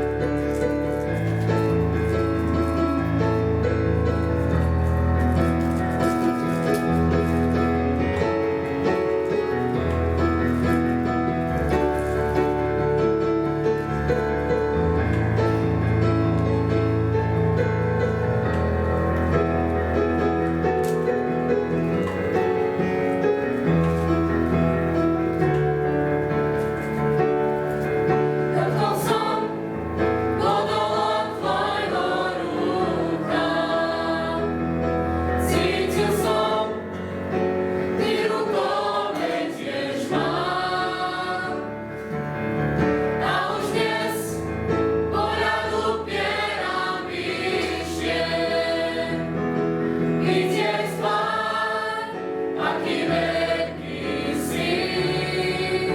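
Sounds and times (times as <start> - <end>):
bass and keyboard accompaniment: 0.0 - 55.9
youth choir singing: 28.1 - 41.9, 42.9 - 55.9.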